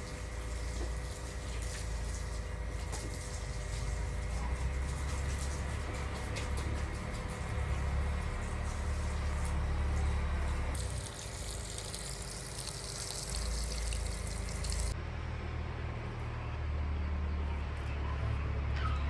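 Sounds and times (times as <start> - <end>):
running water hissing: 7.8 - 15.0.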